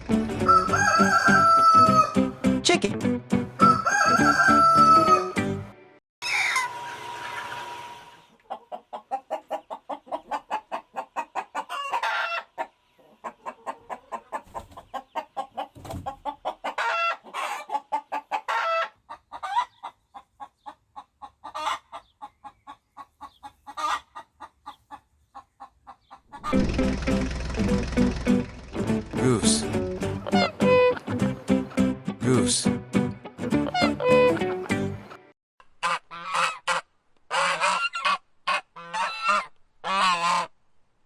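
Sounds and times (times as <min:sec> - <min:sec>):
chicken calls: 0:00.4 - 0:02.3, 0:03.6 - 0:05.4, 0:06.2 - 0:28.9, 0:30.0 - 0:31.2, 0:35.8 - 0:40.5
chickens clucking: 0:06.2 - 0:31.8.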